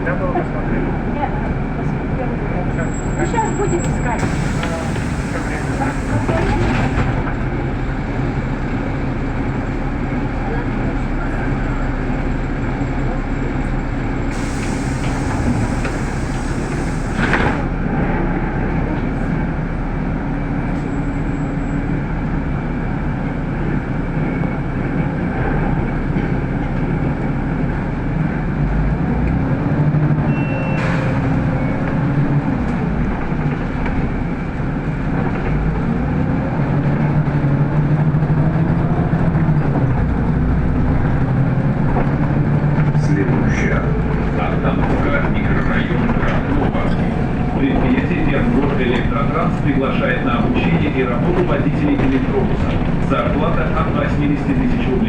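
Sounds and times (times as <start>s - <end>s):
bus engine: 0.0s - 55.0s
hiss of air: 14.3s - 17.3s.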